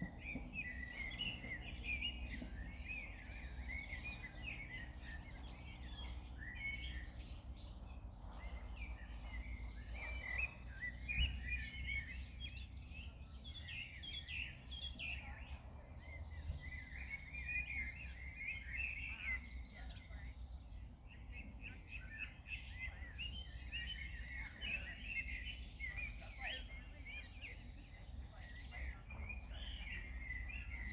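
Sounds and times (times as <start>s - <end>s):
steady low rumble: 0.0s - 12.0s
songbirds chirping and singing: 0.0s - 30.9s.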